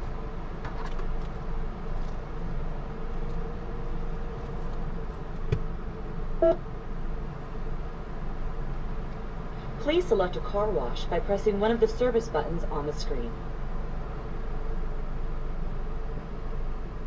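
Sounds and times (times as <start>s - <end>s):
car idling: 0.0s - 10.0s.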